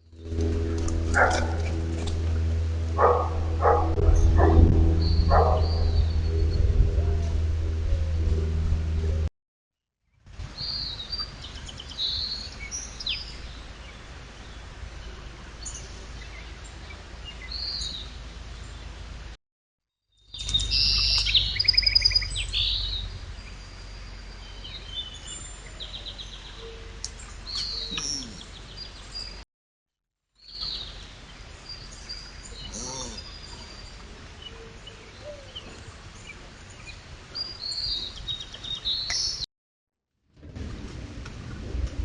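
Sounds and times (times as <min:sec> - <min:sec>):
low rumble: 0:00.0 - 0:09.3, 0:40.4 - 0:42.0
outdoor background noise: 0:00.0 - 0:09.3, 0:10.1 - 0:19.4, 0:20.2 - 0:29.4, 0:30.4 - 0:39.4, 0:40.3 - 0:42.0
wild birds chirping: 0:01.1 - 0:01.6, 0:03.0 - 0:06.6, 0:20.3 - 0:29.4, 0:30.4 - 0:39.4.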